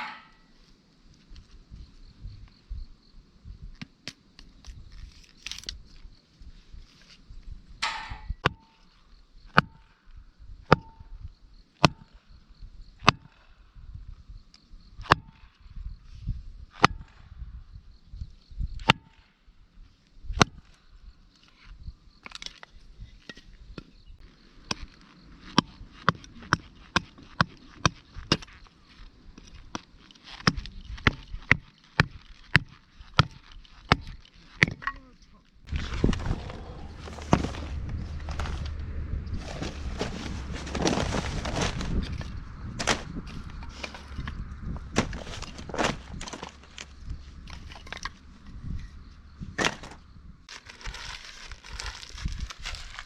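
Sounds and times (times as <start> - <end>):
axe chopping firewood: 7.8 - 8.7, 10.7 - 11.0, 11.8 - 12.1, 29.7 - 35.0, 42.7 - 48.2, 49.5 - 50.0.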